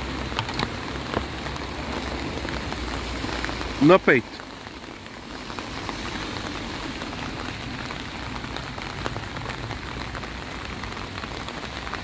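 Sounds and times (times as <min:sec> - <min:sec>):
heavy rain on pavement: 0:00.0 - 0:12.0.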